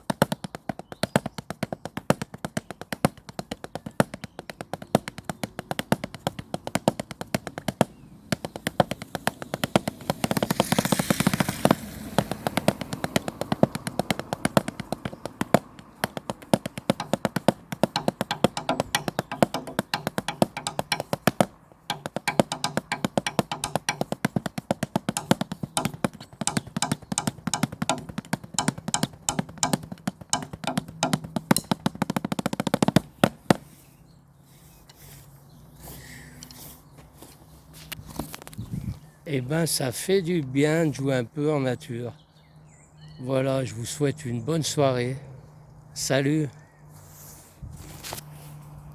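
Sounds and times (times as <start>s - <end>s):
drumsticks tapping and rolling: 0.0s - 33.7s.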